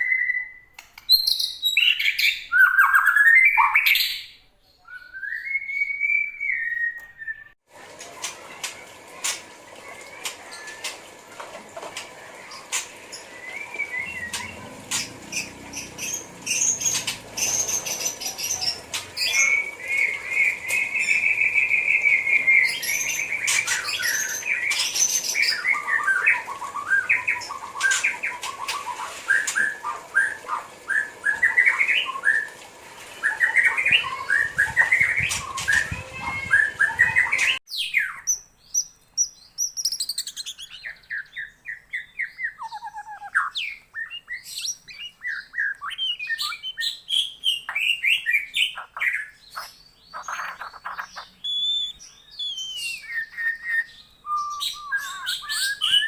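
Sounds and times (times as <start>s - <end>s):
songbird whistling and trilling: 0.0s - 7.6s, 33.3s - 56.0s
sharp clicks: 0.7s - 1.2s.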